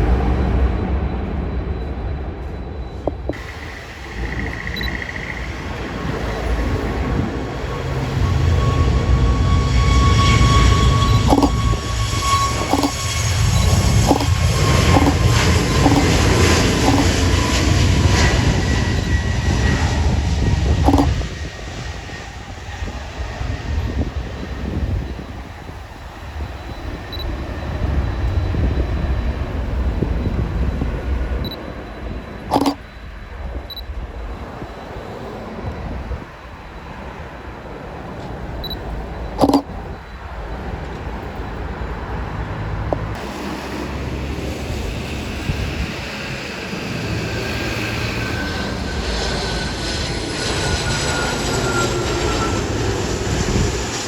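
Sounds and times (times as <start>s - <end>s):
jet engines rumbling: 0.0s - 54.0s
turbine whine: 0.0s - 54.0s
faint high beeps: 2.8s - 5.6s, 7.8s - 17.2s, 20.8s - 21.2s, 31.4s - 33.0s, 38.6s - 40.6s.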